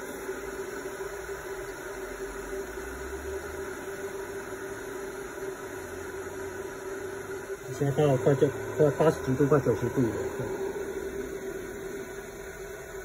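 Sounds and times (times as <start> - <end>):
steady mid-pitched hum: 0.0 - 13.0
even hiss: 4.9 - 13.0.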